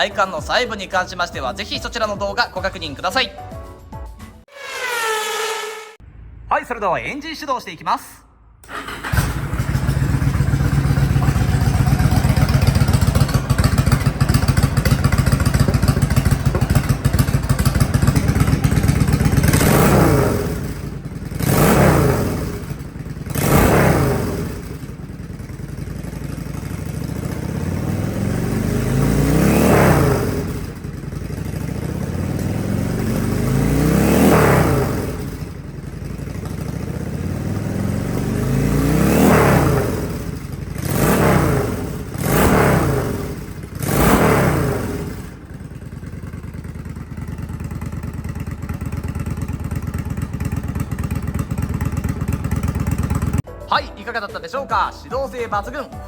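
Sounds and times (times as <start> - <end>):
motorcycle engine idling and revving: 8.6 - 53.5.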